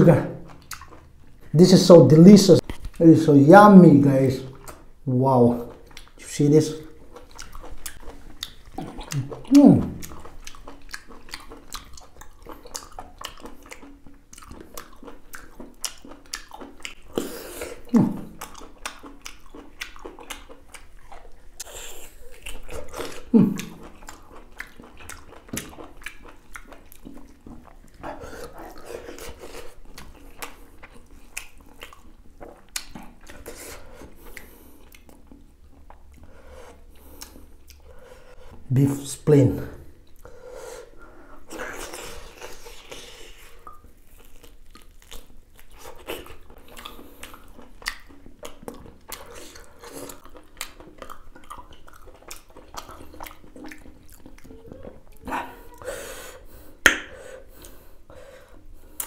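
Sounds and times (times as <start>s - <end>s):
chewing and wet mouth clicks: 0.4s - 1.5s, 5.7s - 37.9s, 41.5s - 55.4s.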